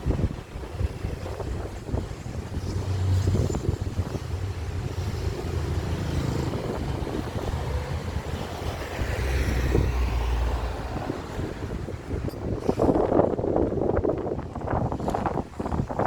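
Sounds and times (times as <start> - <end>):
jet airliner passing overhead: 0.6 - 11.8.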